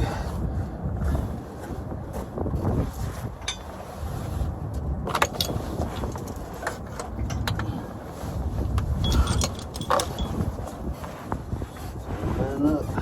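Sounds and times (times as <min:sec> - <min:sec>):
wind buffeting microphone: 0:00.0 - 0:13.0
metallic clinks of tools: 0:09.0 - 0:10.5.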